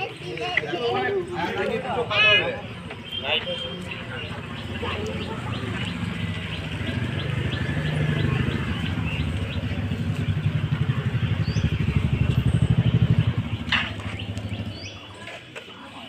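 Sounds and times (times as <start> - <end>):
vehicle engine pulsing: 3.9 - 15.2.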